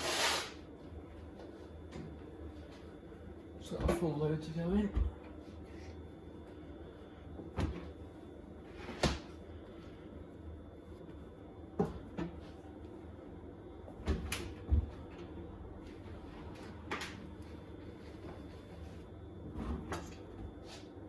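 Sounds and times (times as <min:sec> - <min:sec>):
knocks and thumps in washing machine: 0:13.9 - 0:15.3.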